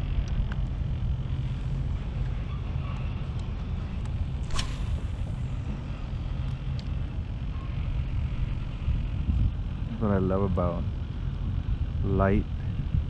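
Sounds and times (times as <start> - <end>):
wind rumbling on microphone: 0.0 - 13.0
fishing rod swish: 4.4 - 5.3
line running off reel: 4.4 - 6.6.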